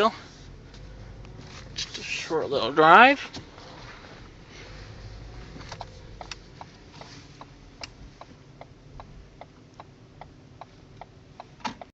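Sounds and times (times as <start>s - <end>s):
low engine hum: 0.0s - 11.9s
turn signal ticking: 0.6s - 2.2s, 5.0s - 11.9s.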